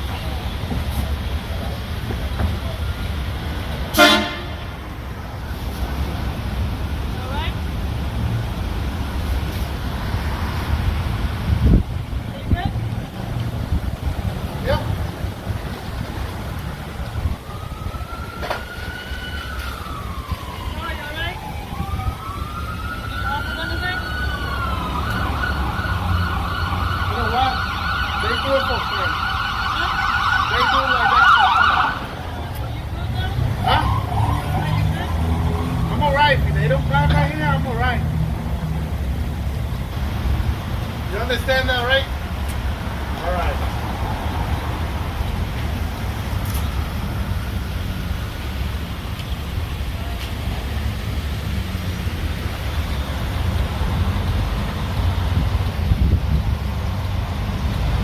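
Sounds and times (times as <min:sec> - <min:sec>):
low rumble of traffic: 0:00.0 - 0:58.0
siren wailing in fast warble: 0:17.4 - 0:32.3.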